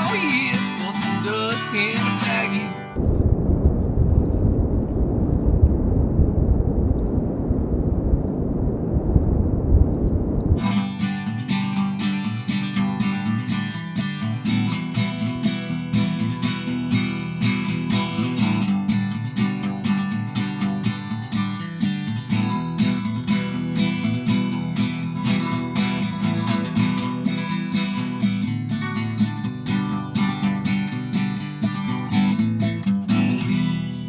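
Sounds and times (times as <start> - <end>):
acoustic guitar strumming: 0.0 - 3.0, 10.6 - 34.0.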